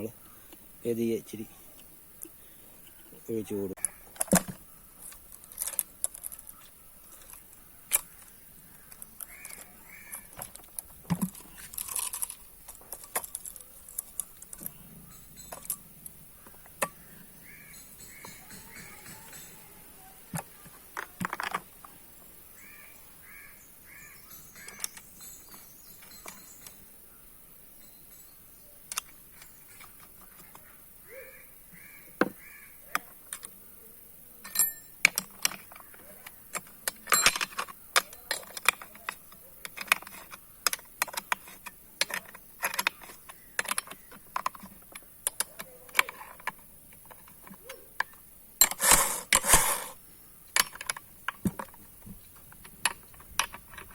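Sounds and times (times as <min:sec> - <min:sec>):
bird calling: 0:00.0 - 0:12.1, 0:13.2 - 0:34.4, 0:35.4 - 0:50.8
metallic clicks of chainsaw parts: 0:03.8 - 0:14.8, 0:34.4 - 0:53.9.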